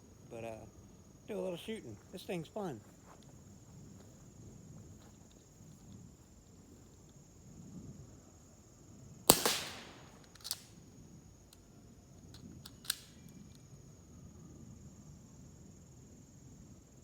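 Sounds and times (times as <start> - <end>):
air pistol shot: 9.3 - 10.7.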